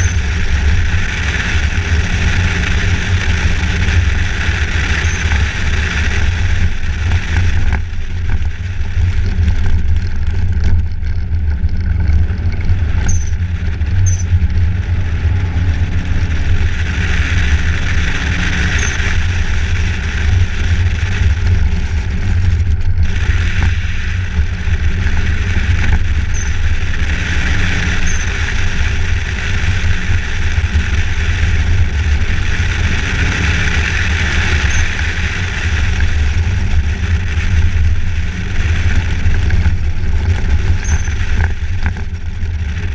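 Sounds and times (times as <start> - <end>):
vehicle driving rumble: 0.0 - 42.9.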